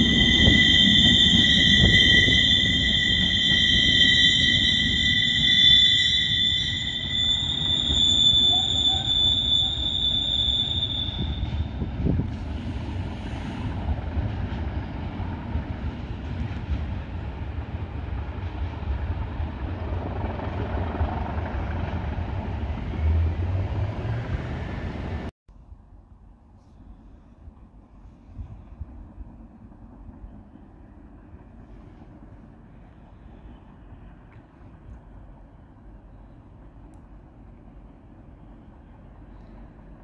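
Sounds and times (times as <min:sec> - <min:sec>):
train wheel squeal: 0:00.0 - 0:13.8
train rumbling: 0:00.0 - 0:40.0.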